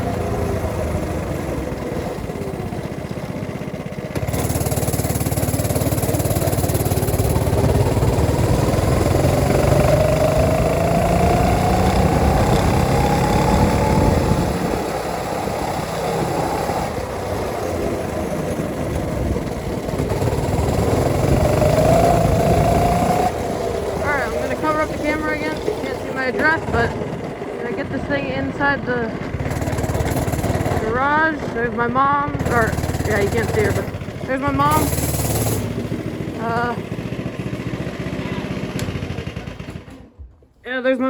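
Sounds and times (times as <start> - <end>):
go-kart engine running: 0.0 - 40.2.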